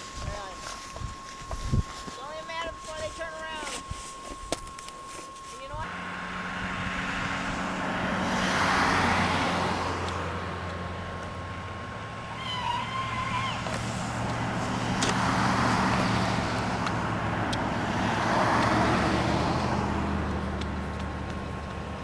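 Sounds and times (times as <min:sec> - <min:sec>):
vehicle engine humming: 0:00.0 - 0:22.0
vehicles passing on snowy road: 0:05.7 - 0:22.0.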